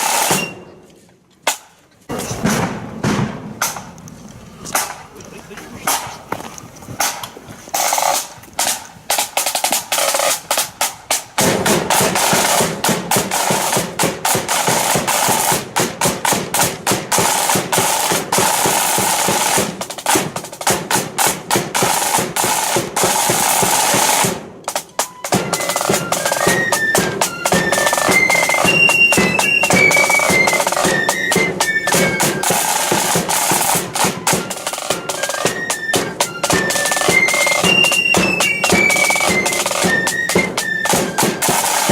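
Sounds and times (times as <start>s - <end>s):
snare drums rolling: 0.0s - 0.7s, 1.5s - 4.0s, 7.0s - 41.9s
flutes playing melody: 0.0s - 0.9s, 22.0s - 41.9s.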